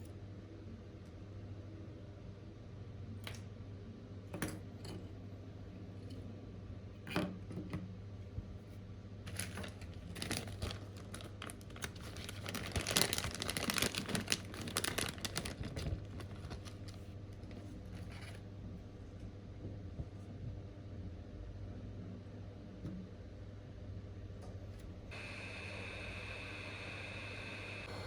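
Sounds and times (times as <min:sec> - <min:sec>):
low hum: 0:24.0 - 0:28.0.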